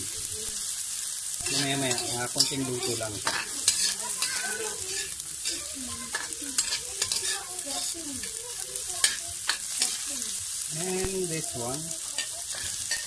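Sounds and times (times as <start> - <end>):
tomato frying in a wok: 0.0 - 13.0
metal spatula scraping wok: 1.4 - 10.3, 11.8 - 13.0
spatula clicking against pan: 5.4 - 7.4.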